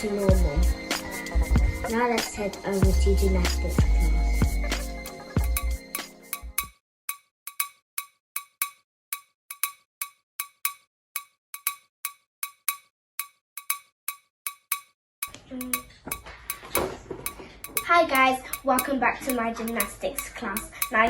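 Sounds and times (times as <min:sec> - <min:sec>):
bright clinking ticks: 0:05.1 - 0:21.0.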